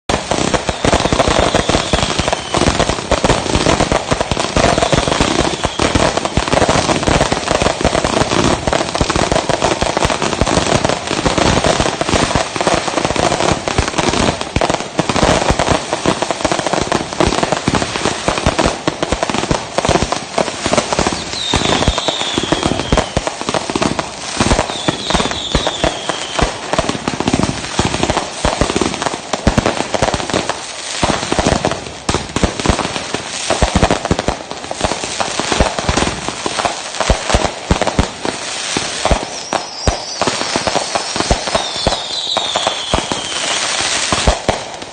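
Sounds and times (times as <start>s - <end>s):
fireworks exploding and crackling: 0.0s - 44.9s
falling firework whistle: 0.1s - 7.5s, 20.7s - 23.4s, 24.4s - 26.7s, 38.4s - 44.8s.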